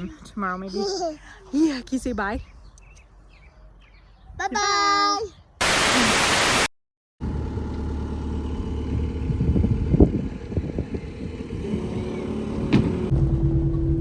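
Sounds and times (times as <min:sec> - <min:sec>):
farm vehicle engine running: 0:07.2 - 0:13.5.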